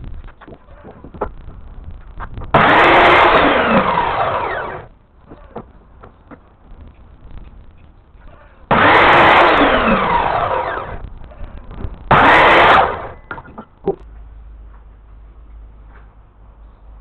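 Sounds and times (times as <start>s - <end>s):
electric power tool motor: 2.6s - 4.9s, 8.7s - 11.0s, 12.1s - 13.2s.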